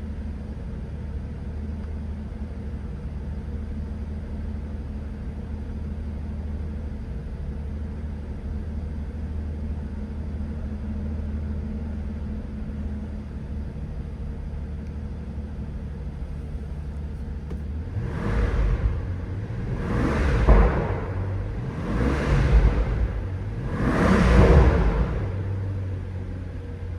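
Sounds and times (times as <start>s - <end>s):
car engine idling: 0.0s - 26.9s
engine revving blips: 17.5s - 26.3s.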